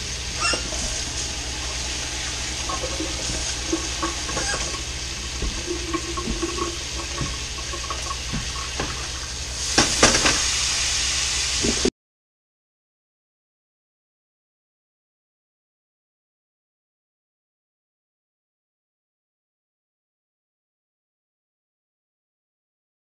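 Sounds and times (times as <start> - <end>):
knocks: 5.4 - 9.0
patties sizzling in a skillet: 6.8 - 11.9.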